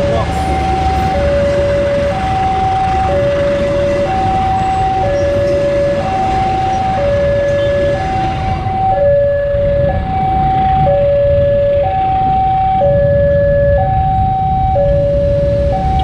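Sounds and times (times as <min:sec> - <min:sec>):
low rumble of passing train: 0:00.0 - 0:12.5
two-tone crossing alarm: 0:00.0 - 0:16.0.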